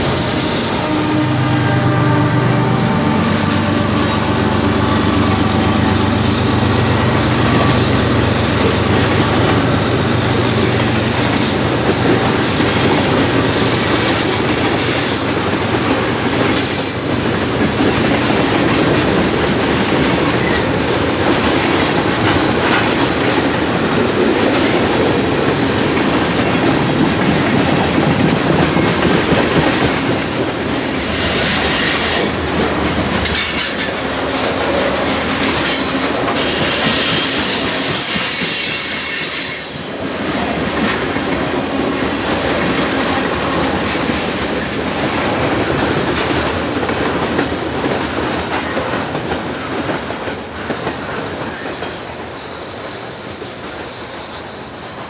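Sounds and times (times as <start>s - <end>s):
train wheels clattering on rails: 0.0s - 55.0s
high wheel squeal: 16.2s - 17.4s, 30.2s - 41.2s.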